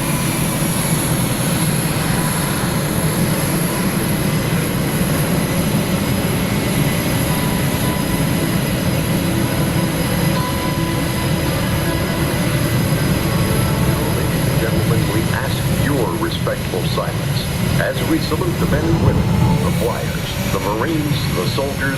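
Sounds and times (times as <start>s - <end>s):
aircraft engine rumble: 0.0s - 21.9s
thin high whine: 7.2s - 21.9s.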